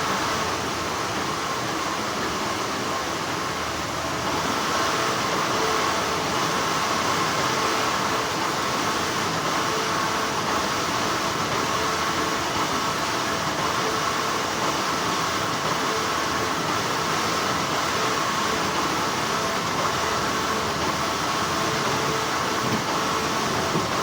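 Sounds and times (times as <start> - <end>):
factory machinery humming: 0.0 - 24.0.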